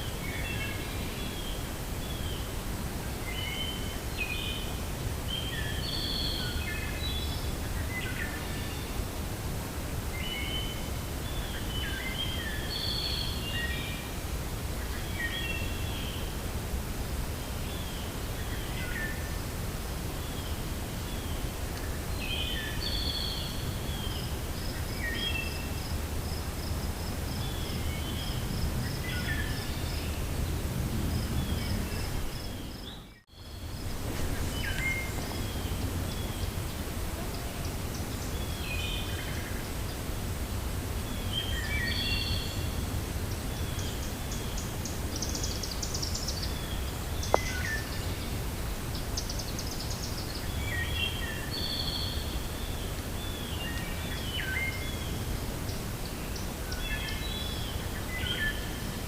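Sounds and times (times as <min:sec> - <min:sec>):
wind through forest: 0:00.0 - 0:59.0
small birds chirping: 0:20.2 - 0:40.1.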